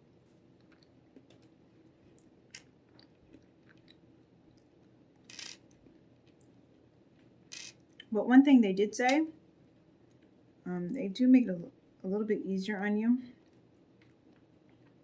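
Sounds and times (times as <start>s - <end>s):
faint clicks of puzzle pieces: 4.6s - 6.5s, 7.5s - 8.0s.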